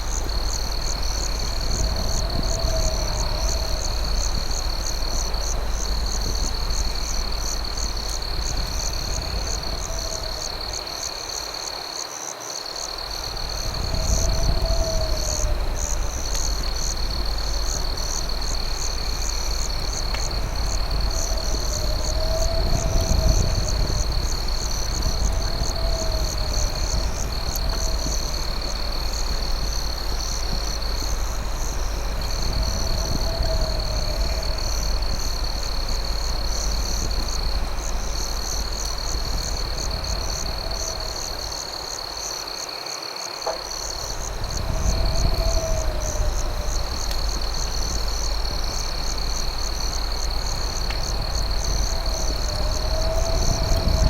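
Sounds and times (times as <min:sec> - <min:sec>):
crickets trilling: 0:00.0 - 0:54.0
low rumble: 0:13.2 - 0:41.7.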